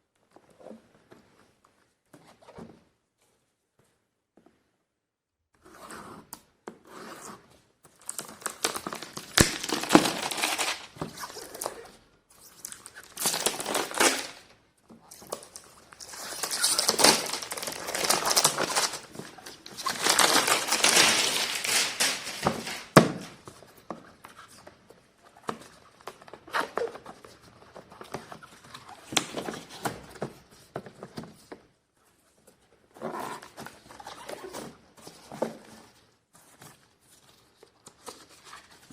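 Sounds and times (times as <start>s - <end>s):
packaging crinkling and rustling: 7.9s - 23.5s.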